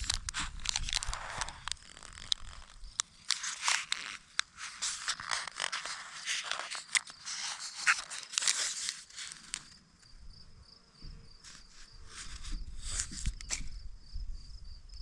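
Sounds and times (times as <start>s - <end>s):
plastic packaging crinkling: 0.0s - 9.8s, 11.5s - 13.7s.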